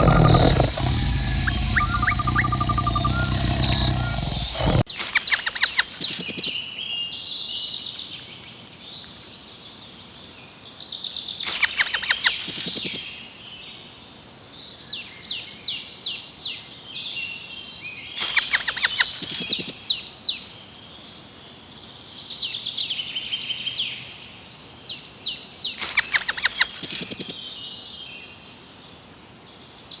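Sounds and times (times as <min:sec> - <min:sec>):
birds chirping and calling: 0:00.0 - 0:06.5, 0:11.5 - 0:13.1, 0:18.2 - 0:19.7, 0:25.8 - 0:27.4
rapid sharp clicks: 0:00.0 - 0:06.5, 0:11.5 - 0:13.2, 0:18.2 - 0:19.7, 0:25.8 - 0:27.4.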